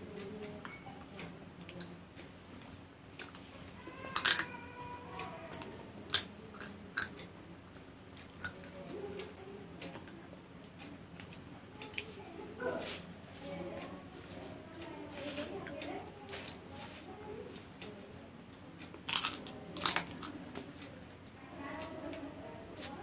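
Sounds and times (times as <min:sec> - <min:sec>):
popcorn chewing crunches: 0:02.6 - 0:04.5, 0:05.5 - 0:08.9, 0:19.0 - 0:20.7.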